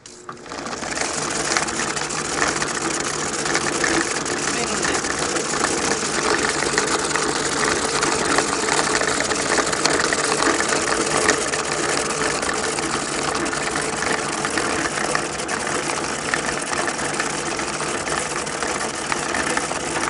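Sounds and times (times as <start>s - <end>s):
dense whirring: 0.0s - 20.0s
machine motor hum: 0.0s - 20.0s.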